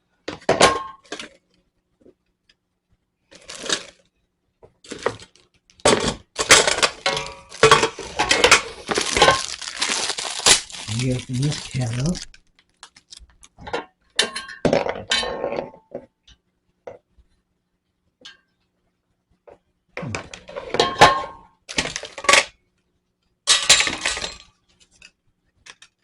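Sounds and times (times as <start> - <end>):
plastic rattling and scraping: 3.3 - 4.1, 4.7 - 13.8
hard plastic parts clattering: 4.8 - 14.5.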